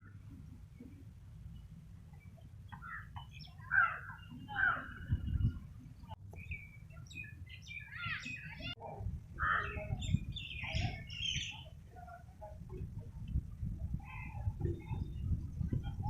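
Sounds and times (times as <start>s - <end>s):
birds chirping and calling: 2.2s - 8.8s, 9.4s - 11.7s.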